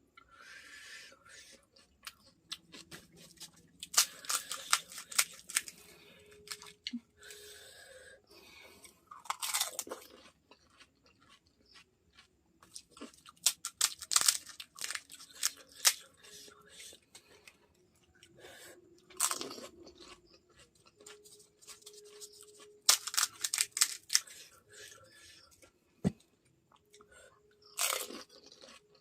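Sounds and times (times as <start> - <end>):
chewing: 1.3 - 7.4, 8.8 - 25.7, 26.7 - 29.0
crunching crisp shells: 1.5 - 7.4, 9.1 - 18.3, 19.0 - 25.5, 27.6 - 29.0.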